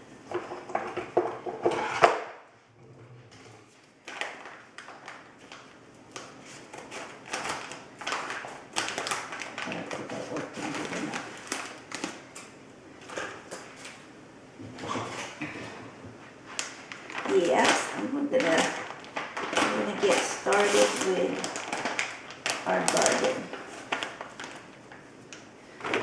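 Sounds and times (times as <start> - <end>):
plastic bag crinkling: 3.9 - 12.4, 16.5 - 26.0.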